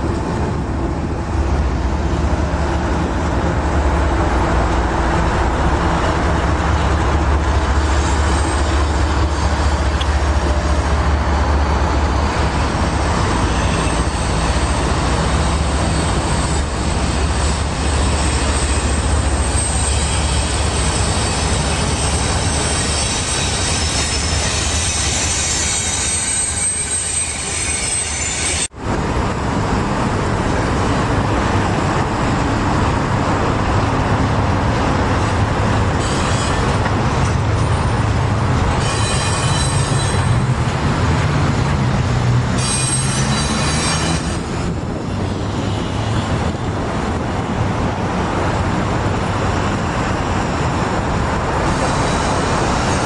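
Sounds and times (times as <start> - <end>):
freight train wheels rumbling: 0.0 - 53.0
wheel squeal: 15.7 - 28.7, 36.0 - 36.9, 38.8 - 40.5, 42.6 - 44.5.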